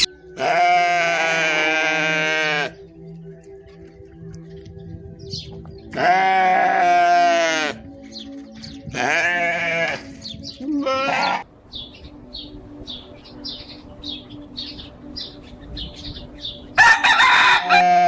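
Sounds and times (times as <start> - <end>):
livestock bleating: 0.4 - 2.8, 5.9 - 8.0, 8.8 - 11.5, 17.6 - 18.0.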